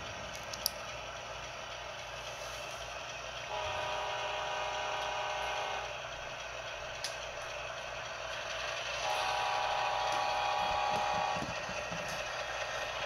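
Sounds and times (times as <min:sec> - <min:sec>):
diesel locomotive engine: 0:00.0 - 0:13.0
multi-note horn: 0:03.5 - 0:05.9, 0:09.0 - 0:11.5.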